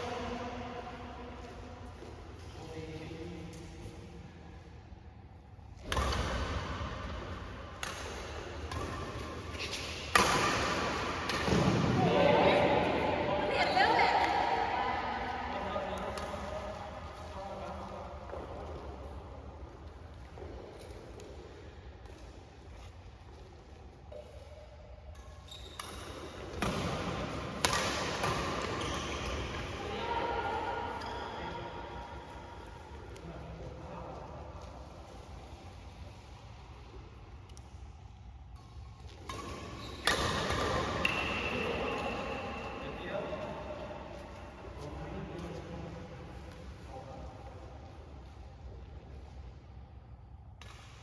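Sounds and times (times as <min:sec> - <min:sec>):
rackets hitting shuttlecock: 0:05.8 - 0:13.0, 0:25.1 - 0:30.0, 0:37.5 - 0:42.7, 0:50.6 - 0:51.0
shoe squeaks and court noise: 0:07.8 - 0:12.0, 0:24.0 - 0:30.0, 0:38.7 - 0:43.4.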